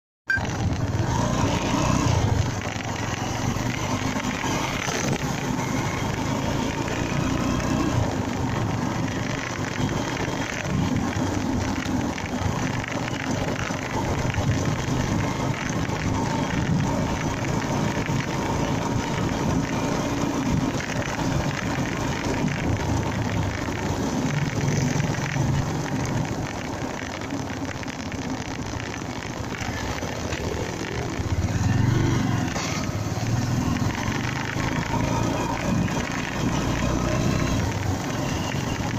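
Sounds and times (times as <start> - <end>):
wind noise on microphone: 0.3 - 3.2
motorcycle engine running: 0.3 - 38.9
road noise: 0.3 - 38.9.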